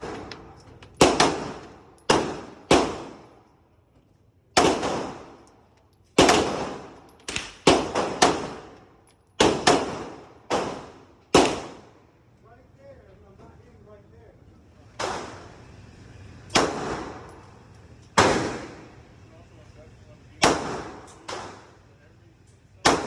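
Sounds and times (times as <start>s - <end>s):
pistol shots: 0.0s - 3.3s, 4.5s - 5.4s, 6.2s - 8.8s, 9.4s - 12.0s, 15.0s - 15.6s, 16.5s - 17.3s, 18.2s - 18.9s, 20.4s - 21.8s.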